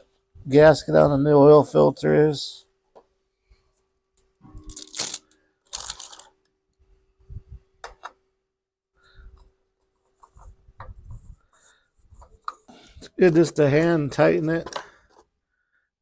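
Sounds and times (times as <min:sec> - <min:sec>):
hands working on engine parts: 0:09.3 - 0:15.4.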